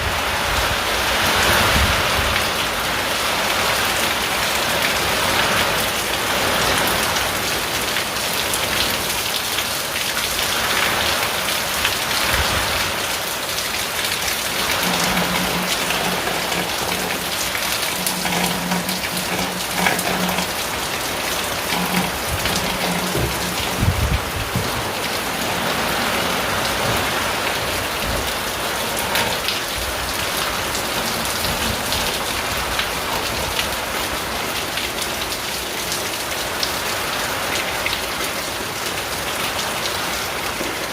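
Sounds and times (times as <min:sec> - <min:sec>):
heavy rain on a tin roof: 0:00.0 - 0:40.9
low thumps: 0:21.6 - 0:25.0.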